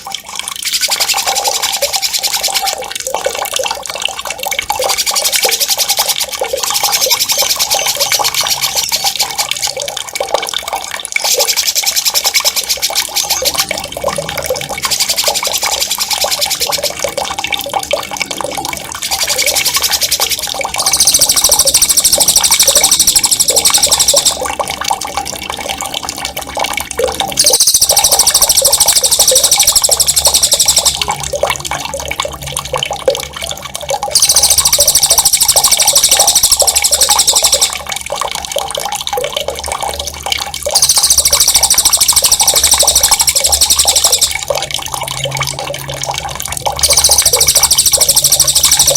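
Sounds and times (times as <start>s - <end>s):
running water: 0.0s - 48.9s
songbird high rolling trills: 19.0s - 24.5s, 27.4s - 31.1s, 34.1s - 37.8s, 40.8s - 44.4s, 46.8s - 48.9s.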